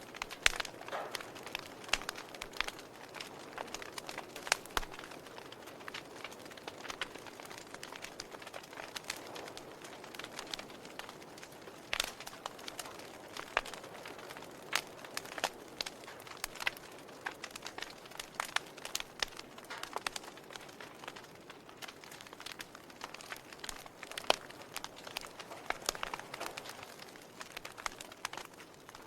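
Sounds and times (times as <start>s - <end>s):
log fire crackling: 0.0s - 29.0s.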